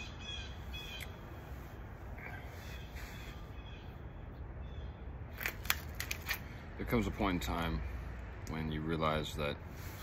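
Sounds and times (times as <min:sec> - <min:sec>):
short bird calls: 0:00.0 - 0:01.5, 0:02.2 - 0:05.1.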